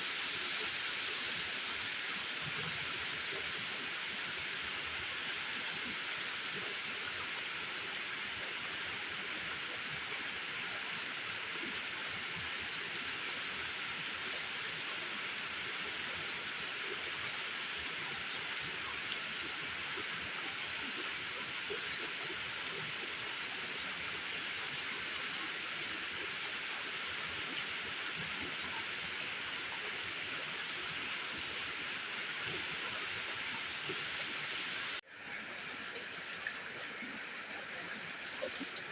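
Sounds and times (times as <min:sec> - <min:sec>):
heavy rain hissing: 0:23.5 - 0:38.9.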